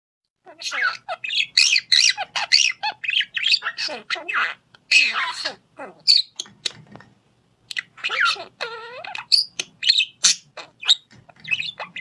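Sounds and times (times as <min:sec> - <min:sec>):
parrot squawking: 0:00.4 - 0:06.8, 0:07.7 - 0:12.0.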